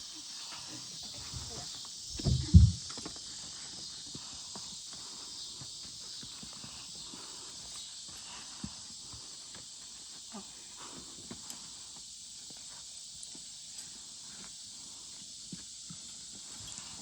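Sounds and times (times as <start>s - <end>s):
horse hooves stepping: 1.1s - 3.2s.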